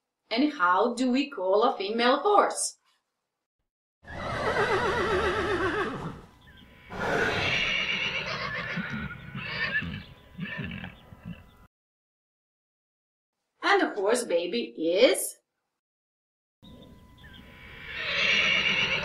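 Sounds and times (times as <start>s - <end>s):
horse whinnying: 4.0s - 11.4s, 17.5s - 19.0s.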